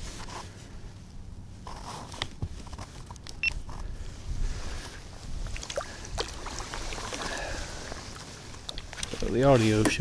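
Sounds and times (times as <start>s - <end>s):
wind rumble on microphone: 3.6s - 8.2s.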